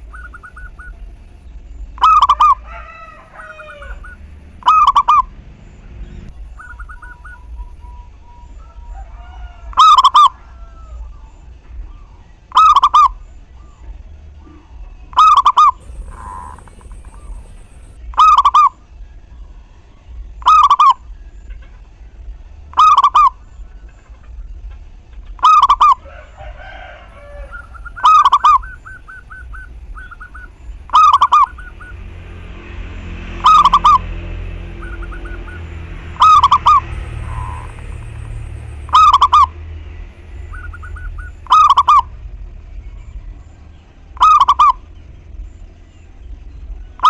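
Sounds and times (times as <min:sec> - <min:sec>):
dove trilled cooing: 0:00.0 - 0:01.4, 0:02.0 - 0:05.3, 0:06.4 - 0:08.7, 0:14.4 - 0:18.7, 0:25.4 - 0:32.2, 0:33.3 - 0:39.6, 0:40.3 - 0:42.2, 0:44.2 - 0:44.9.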